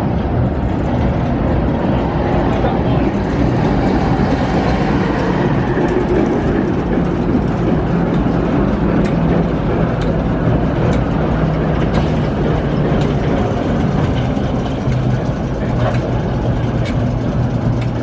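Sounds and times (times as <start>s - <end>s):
train rumbling on track: 0.0s - 18.0s
wheel clicks over rail joints: 0.3s - 18.0s.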